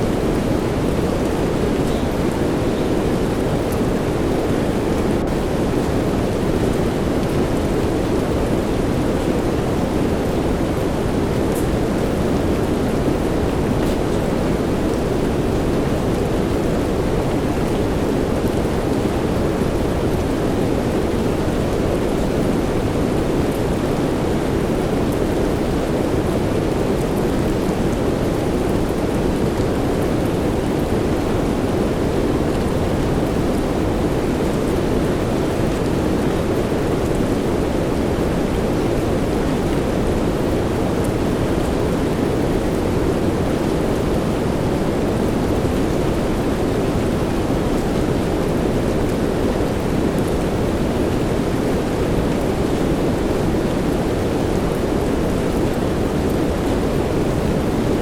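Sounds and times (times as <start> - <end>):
steady rain hiss: 0.0 - 58.0
faint light ticks: 11.5 - 11.7.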